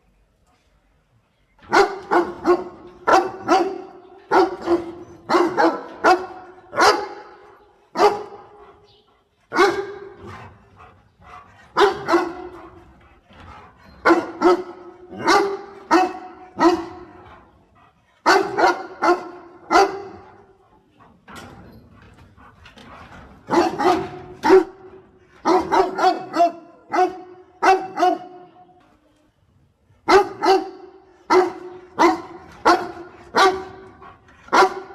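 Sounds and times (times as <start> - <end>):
dog barking: 1.7 - 7.4, 8.0 - 8.5, 9.5 - 10.2, 11.8 - 12.6, 14.0 - 17.2, 18.2 - 20.3, 23.5 - 28.5, 30.1 - 33.9, 34.5 - 34.9.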